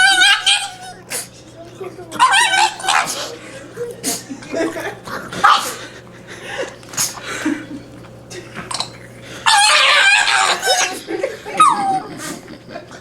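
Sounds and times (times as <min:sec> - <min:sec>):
dog whine-howling: 0:00.0 - 0:01.1, 0:02.2 - 0:03.4, 0:09.4 - 0:11.0, 0:11.6 - 0:12.2.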